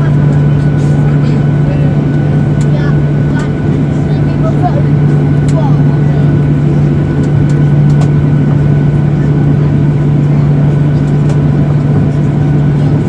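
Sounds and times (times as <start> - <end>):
jet airliner cabin engine hum: 0.0 - 13.0.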